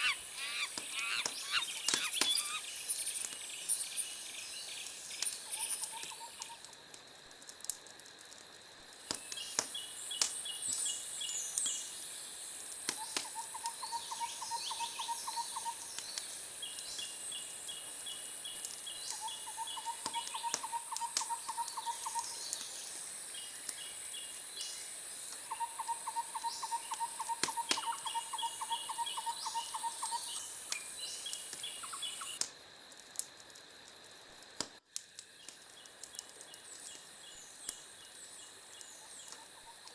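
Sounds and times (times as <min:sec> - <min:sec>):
animals calling in rapid trills: 0:00.0 - 0:02.8
high-pitched insect-like buzz: 0:00.0 - 0:04.6
sharp crackle-like clicks: 0:00.6 - 0:11.9, 0:12.5 - 0:13.8, 0:15.6 - 0:22.8, 0:26.9 - 0:28.1, 0:30.0 - 0:39.9.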